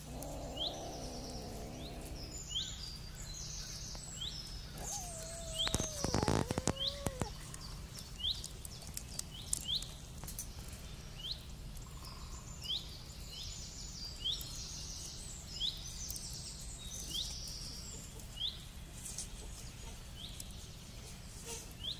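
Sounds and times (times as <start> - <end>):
faint clicks: 4.8 - 10.8.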